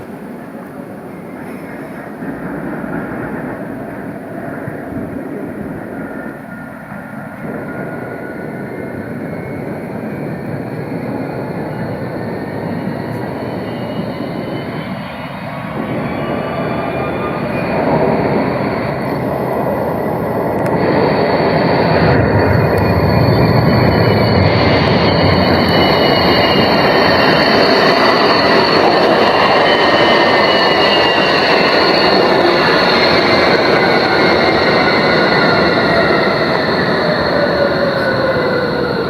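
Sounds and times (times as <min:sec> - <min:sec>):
tram rumbling with faint whine: 0:00.0 - 0:39.0.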